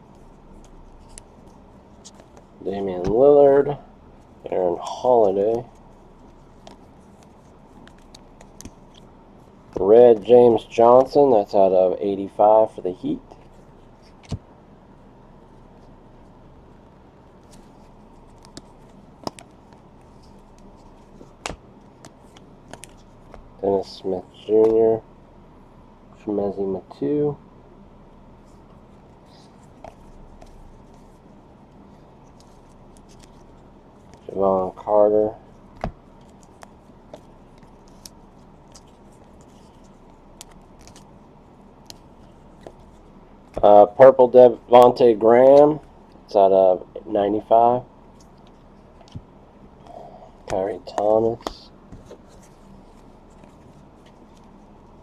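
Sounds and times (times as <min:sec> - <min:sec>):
low room hum: 0:00.0 - 0:55.0
cards being handled and flipped: 0:00.1 - 0:11.6, 0:12.2 - 0:14.4, 0:17.3 - 0:23.5, 0:24.2 - 0:24.8, 0:28.4 - 0:46.2, 0:47.5 - 0:55.0
trading cards being flipped: 0:05.1 - 0:09.1, 0:13.3 - 0:14.4, 0:17.4 - 0:23.5, 0:31.8 - 0:34.9, 0:35.7 - 0:41.1, 0:41.8 - 0:43.7.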